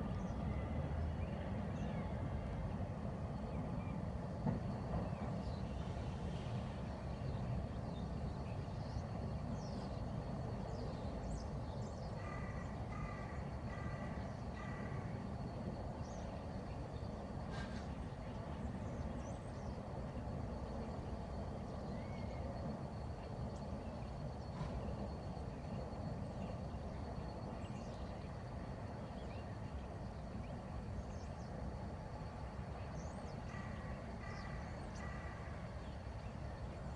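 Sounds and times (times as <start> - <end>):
low rumbling background noise: 0.0 - 36.9
faint bird chirps: 15.9 - 31.6.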